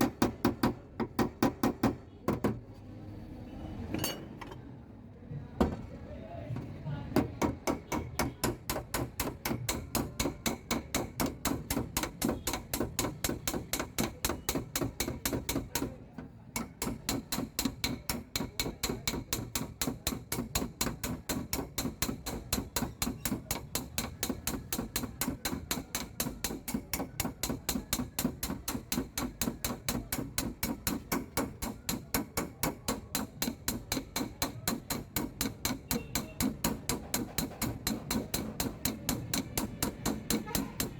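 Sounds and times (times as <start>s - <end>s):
hammer tapping sheet metal: 7.2s - 40.9s.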